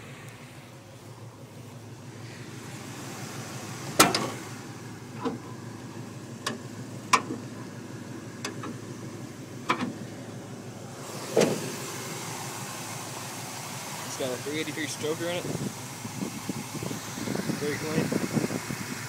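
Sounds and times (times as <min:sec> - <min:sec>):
car engine idling: 0:00.0 - 0:19.0
sharp clicks and knocks: 0:04.0 - 0:04.4, 0:06.4 - 0:07.4, 0:08.4 - 0:08.8, 0:09.7 - 0:10.0.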